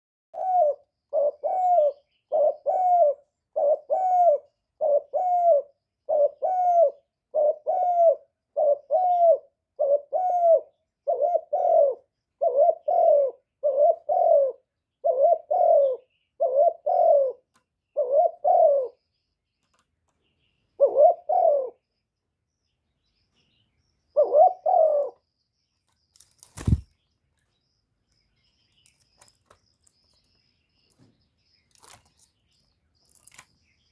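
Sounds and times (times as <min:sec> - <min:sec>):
dove cooing: 0:00.4 - 0:19.0, 0:20.8 - 0:21.8, 0:24.2 - 0:25.2.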